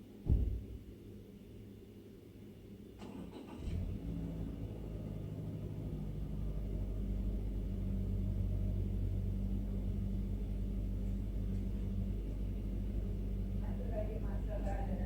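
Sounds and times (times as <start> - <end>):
vehicle engine humming: 3.5 - 15.0.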